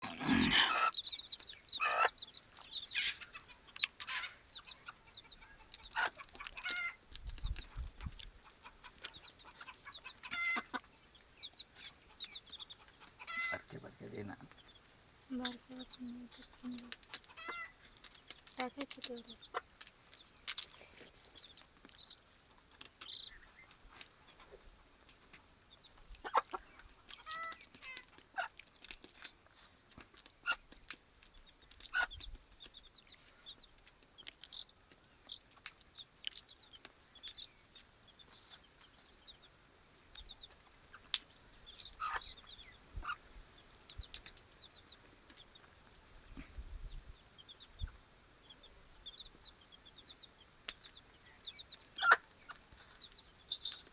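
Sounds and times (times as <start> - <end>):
hen calling: 0.0 - 7.0, 8.4 - 14.6, 15.3 - 17.8, 26.2 - 28.6, 40.4 - 43.3, 51.2 - 52.6
chicks peeping: 0.0 - 53.9.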